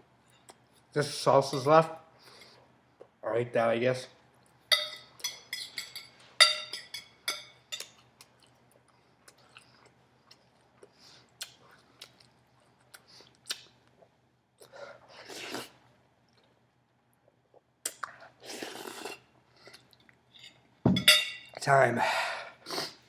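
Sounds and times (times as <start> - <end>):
person chewing and smacking: 7.8 - 14.8.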